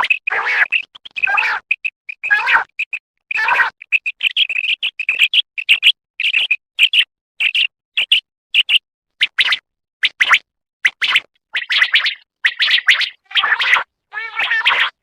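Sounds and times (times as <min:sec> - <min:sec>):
quail calling: 0:11.0 - 0:15.0.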